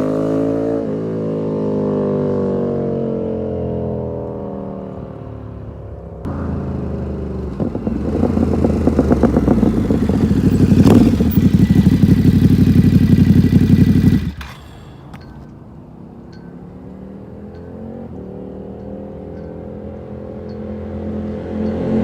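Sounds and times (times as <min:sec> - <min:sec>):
motorcycle engine running hard: 0:06.3 - 0:15.4.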